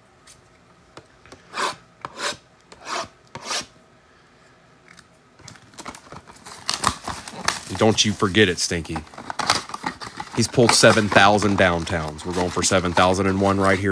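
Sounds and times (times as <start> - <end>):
faint handling sounds: 4.4 - 13.9
card packs rubbing together: 5.5 - 13.9.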